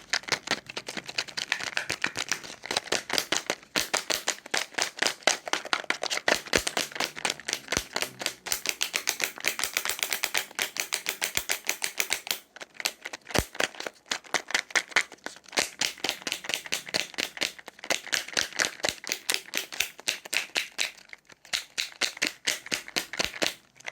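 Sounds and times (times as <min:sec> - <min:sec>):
rapid tapping clicks: 0:00.0 - 0:12.4.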